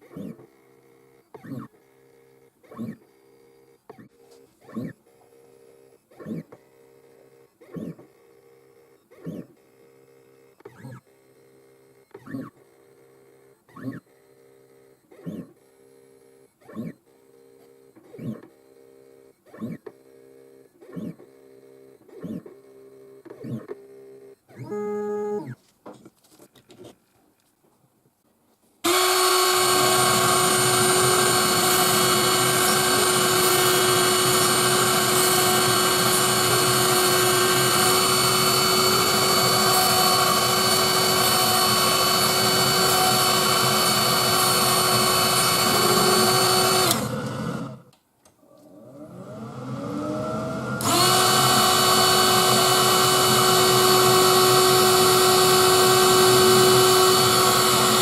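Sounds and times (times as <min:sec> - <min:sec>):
spindle motor whine: 0:20.9 - 0:25.6, 0:28.8 - 0:47.9, 0:48.6 - 0:58.0.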